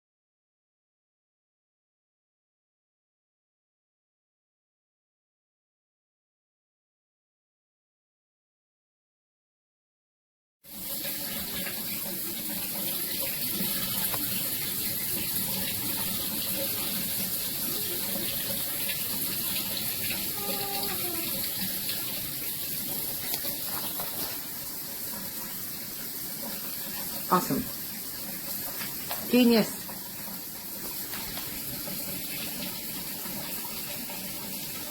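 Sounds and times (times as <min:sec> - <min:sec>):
shower water spraying: 0:10.7 - 0:34.9.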